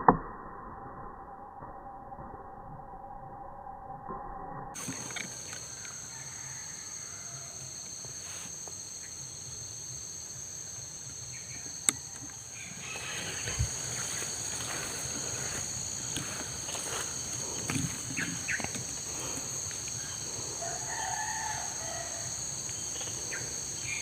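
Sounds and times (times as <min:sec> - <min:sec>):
high-pitched insect drone: 0:01.1 - 0:24.0
rustling in brush: 0:12.8 - 0:18.3.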